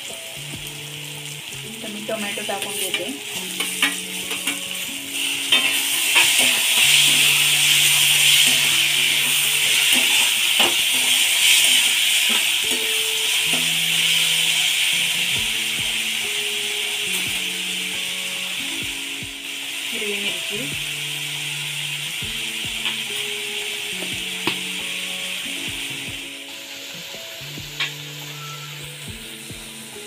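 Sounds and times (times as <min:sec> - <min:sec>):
background music with held notes: 0:00.0 - 0:30.0
vegetables sizzling in oil: 0:00.0 - 0:30.0
spatula scraping and tapping pan: 0:02.6 - 0:04.8, 0:05.5 - 0:13.7.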